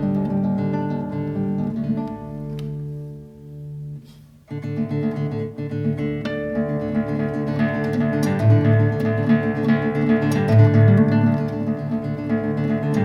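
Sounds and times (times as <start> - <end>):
fingerpicked classical guitar: 0.0 - 13.0.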